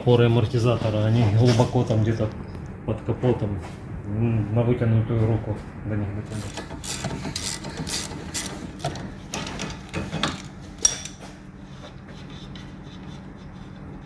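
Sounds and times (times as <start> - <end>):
low background hum: 0.0 - 14.0
hand tools clicking on metal: 6.3 - 11.2.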